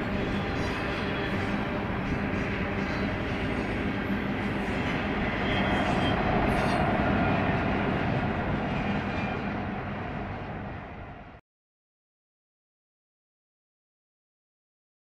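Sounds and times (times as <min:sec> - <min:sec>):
locomotive engine drone: 0:00.0 - 0:11.4
rail noise: 0:00.0 - 0:11.4.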